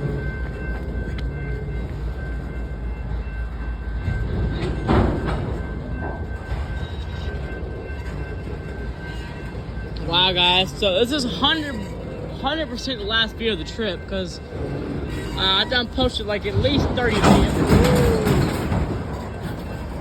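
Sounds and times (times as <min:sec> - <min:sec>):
train rumbling on track: 0:00.0 - 0:20.0
wheel clatter: 0:04.0 - 0:20.0.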